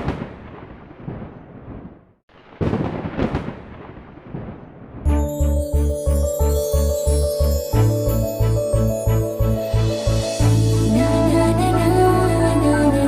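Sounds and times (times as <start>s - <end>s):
thunder crack and rumble: 0.0s - 5.1s
background music with steady beat: 5.1s - 13.0s.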